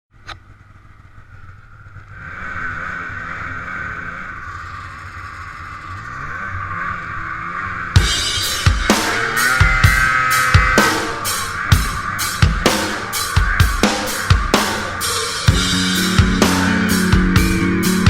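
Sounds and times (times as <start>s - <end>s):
snowmobile engine revving: 0.3s - 18.0s
music with drums: 8.0s - 18.0s.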